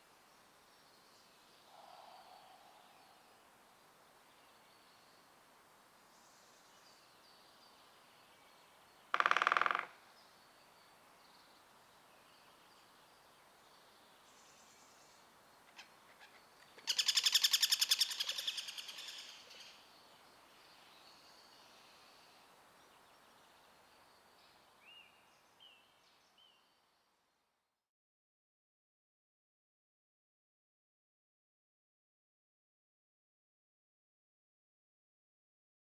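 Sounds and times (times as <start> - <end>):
faint bird calls: 1.6 - 3.4, 9.1 - 10.0
woodpecker drumming: 9.1 - 10.0.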